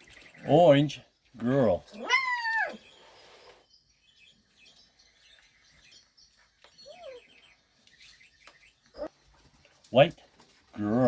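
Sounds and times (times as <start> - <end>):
puppy squeaking: 6.8 - 7.4
puppy whimper: 6.8 - 7.4.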